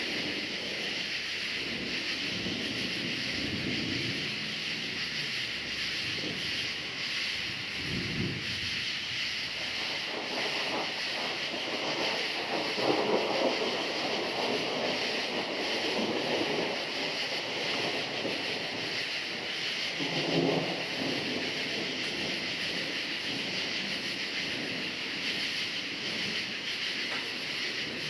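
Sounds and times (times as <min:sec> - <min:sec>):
crickets chirping: 0:00.0 - 0:28.0
thunder rolling: 0:00.0 - 0:28.0.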